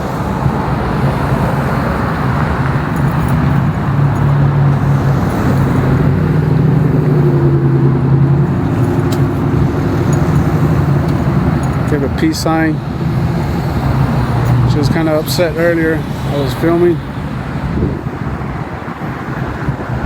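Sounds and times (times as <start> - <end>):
car engine humming: 0.0 - 15.2
road traffic noise: 0.0 - 20.0.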